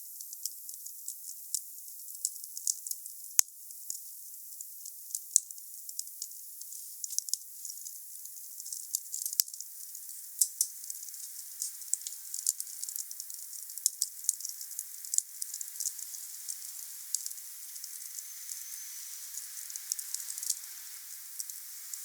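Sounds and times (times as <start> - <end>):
faint hiss: 6.2 - 22.0.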